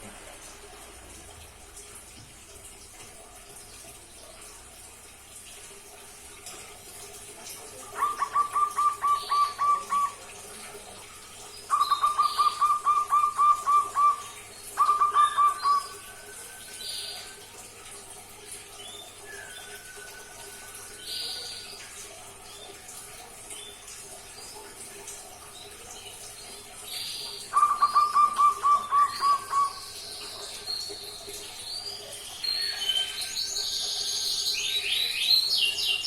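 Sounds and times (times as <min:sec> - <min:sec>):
dove cooing: 0:08.0 - 0:10.2, 0:11.7 - 0:16.0, 0:27.6 - 0:29.8.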